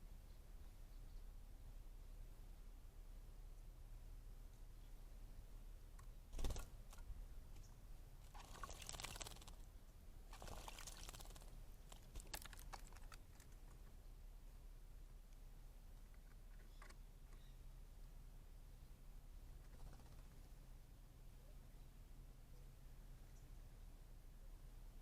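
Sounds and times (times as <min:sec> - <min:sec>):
water splashing: 0:08.3 - 0:09.6, 0:10.4 - 0:13.1.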